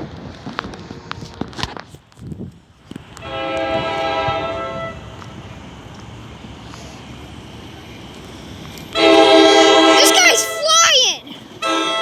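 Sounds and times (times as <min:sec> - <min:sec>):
train rumble: 0:02.4 - 0:12.0
train horn chord: 0:03.2 - 0:05.1, 0:09.0 - 0:10.0, 0:11.6 - 0:12.0.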